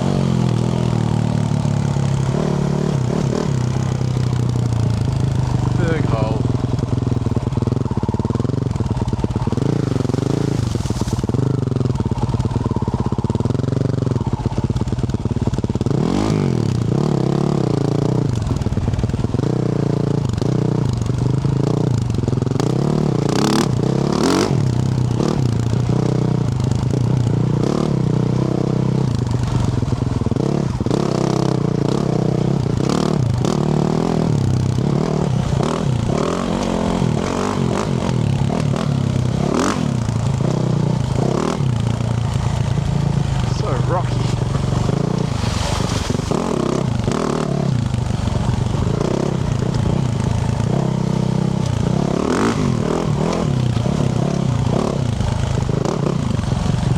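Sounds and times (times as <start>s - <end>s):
motorcycle engine revving: 0.0s - 56.9s
knocks and clatter from rough ground: 43.4s - 47.2s.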